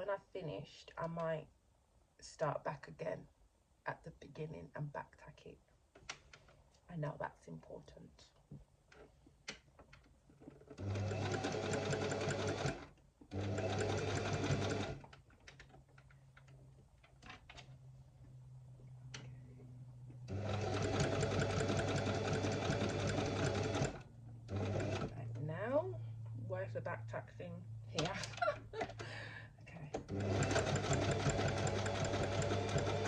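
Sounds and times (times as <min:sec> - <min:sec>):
sewing machine stitching: 0:10.6 - 0:15.1, 0:20.3 - 0:25.2, 0:29.9 - 0:33.0.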